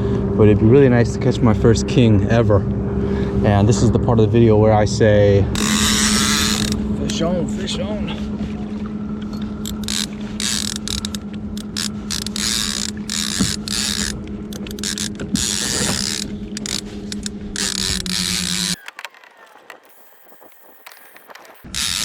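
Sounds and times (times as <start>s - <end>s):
fishing reel drag clicking: 5.6s - 7.2s, 9.4s - 22.0s.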